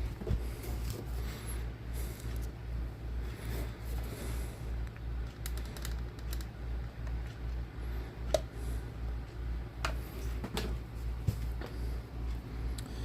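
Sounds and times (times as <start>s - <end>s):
low pulsing hum: 0.0s - 13.0s.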